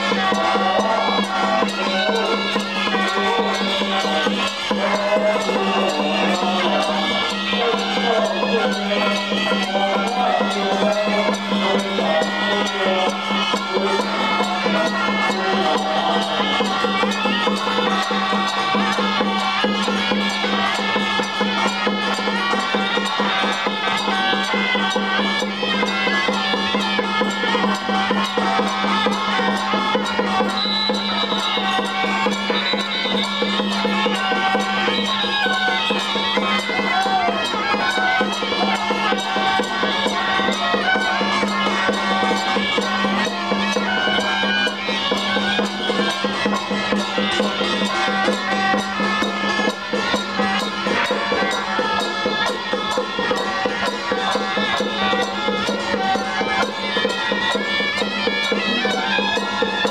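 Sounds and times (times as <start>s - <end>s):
cymbal beats: 0.0s - 59.9s
fast drumming: 0.0s - 59.9s.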